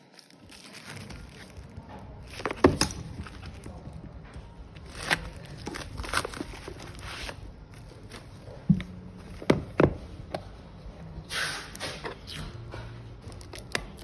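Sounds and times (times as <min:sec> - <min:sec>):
parcel rustling: 0:00.0 - 0:09.8.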